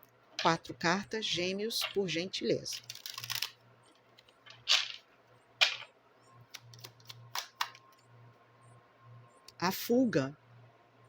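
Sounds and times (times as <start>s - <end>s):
cards snapping: 2.8s - 3.6s, 5.6s - 5.9s, 6.5s - 7.9s.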